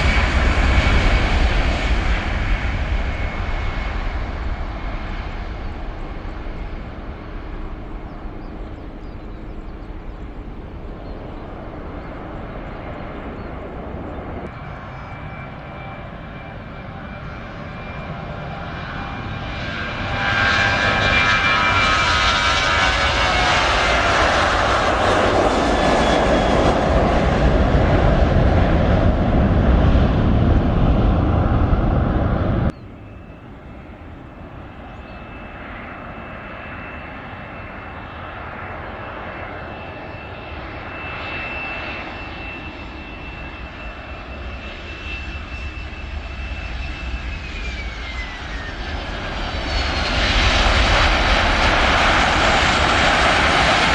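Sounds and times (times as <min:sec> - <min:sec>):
airliner engines passing: 0:00.0 - 0:53.9
steady aircraft engine noise: 0:00.0 - 0:53.9.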